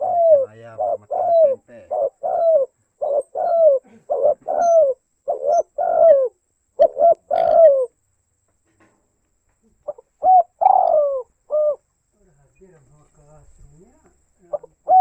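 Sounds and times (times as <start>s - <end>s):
dove cooing: 0.0s - 7.9s, 9.9s - 11.9s, 14.4s - 15.0s.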